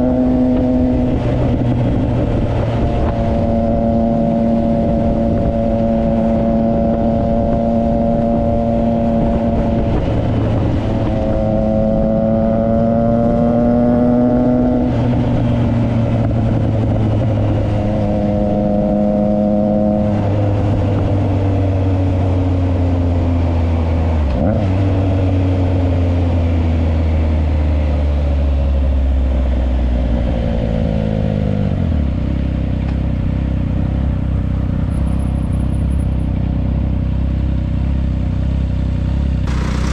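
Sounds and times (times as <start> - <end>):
wind rush: 0.0 - 18.7
motorcycle engine revving: 0.0 - 23.3, 36.7 - 39.9.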